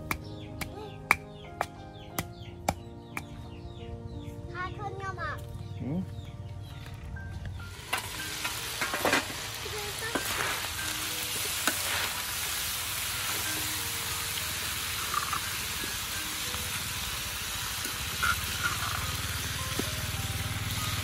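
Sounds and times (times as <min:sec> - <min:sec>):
meat sizzling in a wok: 0:07.7 - 0:21.0.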